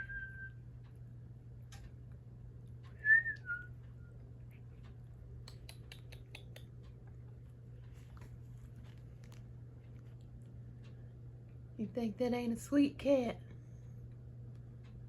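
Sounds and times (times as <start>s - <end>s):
steady low hum: 0.0s - 15.0s
faint clicks: 1.6s - 11.6s.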